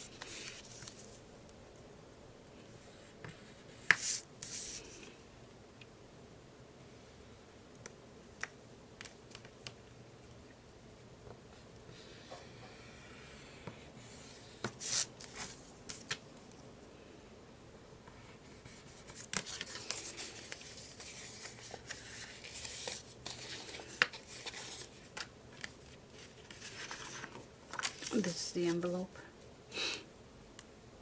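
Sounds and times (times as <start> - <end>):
paper rustling: 0.0 - 1.2, 14.2 - 16.2, 18.4 - 28.5.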